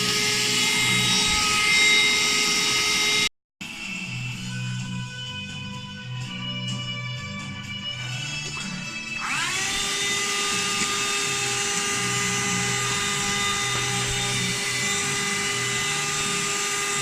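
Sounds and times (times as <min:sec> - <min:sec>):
handheld vacuum cleaner whine: 0:00.0 - 0:17.0.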